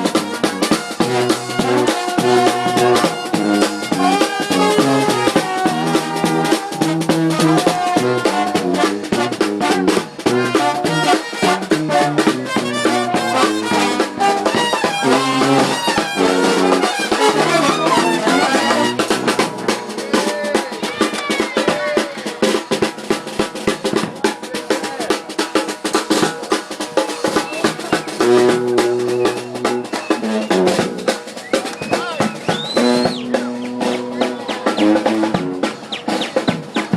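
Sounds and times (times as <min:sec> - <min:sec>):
brass horns playing: 0:00.0 - 0:20.0, 0:28.1 - 0:31.4, 0:32.8 - 0:35.7
snare and bass drum: 0:00.0 - 0:36.9.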